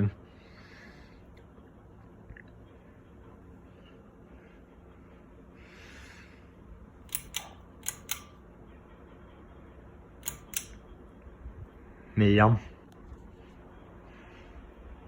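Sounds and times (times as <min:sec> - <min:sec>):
ceiling fan hum: 0:00.0 - 0:15.0
pull-chain switch clicks: 0:07.0 - 0:08.4, 0:10.2 - 0:10.8.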